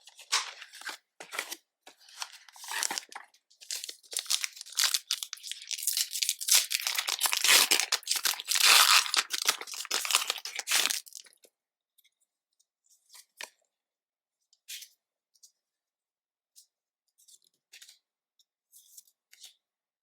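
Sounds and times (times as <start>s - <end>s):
plastic wrapping tearing: 2.6s - 11.3s.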